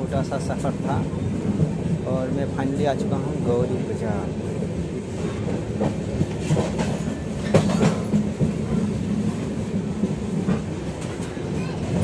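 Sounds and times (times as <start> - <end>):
train wheels rumbling on rails: 0.0 - 12.0
wheels clacking over rail joints: 5.2 - 12.0.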